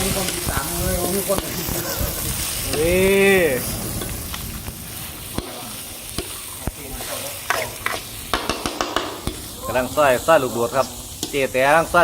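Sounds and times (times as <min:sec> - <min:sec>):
food sizzling in oil: 0:00.0 - 0:12.0
utensil knocking against pan: 0:07.5 - 0:09.4.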